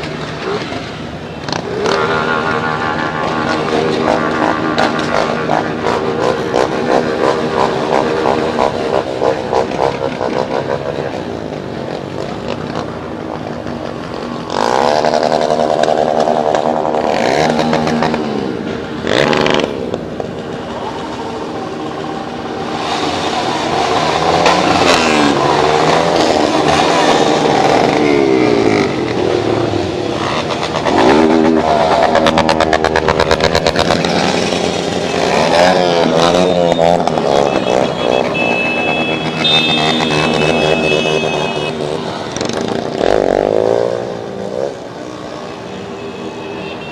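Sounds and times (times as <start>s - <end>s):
motorcycle engines revving: 0.0s - 46.9s.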